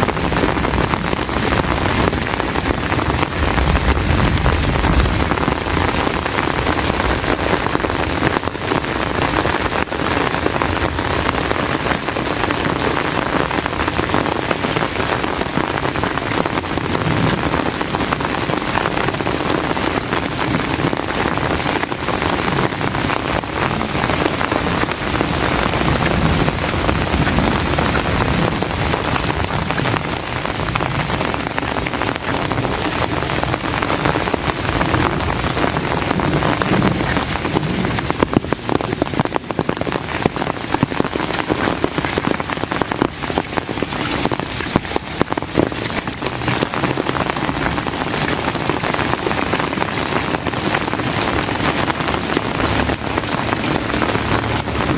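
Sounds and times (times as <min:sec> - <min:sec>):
heavy rain pouring: 0:00.0 - 0:54.9.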